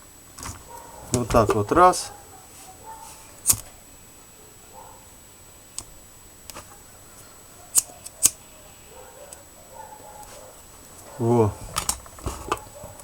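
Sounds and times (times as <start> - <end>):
clicks of hand tools and wires: 3.4 - 3.8, 11.7 - 13.0.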